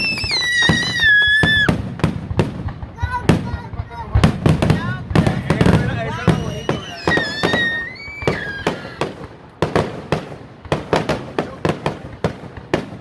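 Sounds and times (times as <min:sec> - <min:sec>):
high wavering firework whistle: 0:00.0 - 0:01.8, 0:06.1 - 0:09.3
fireworks banging and popping: 0:00.0 - 0:13.0.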